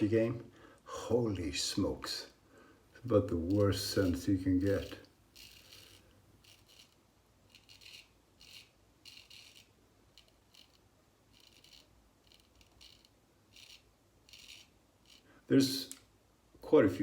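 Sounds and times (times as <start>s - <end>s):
razor scraping stubble: 3.2s - 15.3s.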